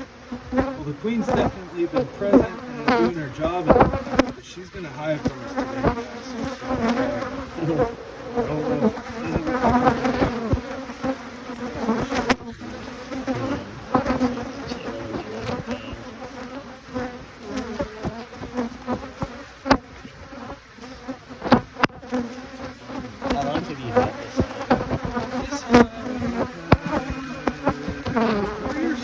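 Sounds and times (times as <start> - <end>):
honey bees buzzing: 0.0 - 29.0
sharp knocks: 1.3 - 4.4.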